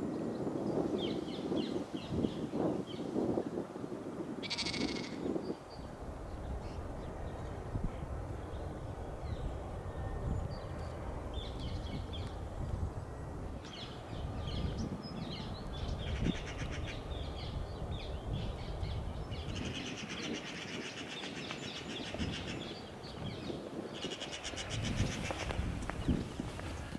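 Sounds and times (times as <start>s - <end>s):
bird rattling call: 4.4s - 5.3s
songbirds chirping and whistling: 13.6s - 26.9s.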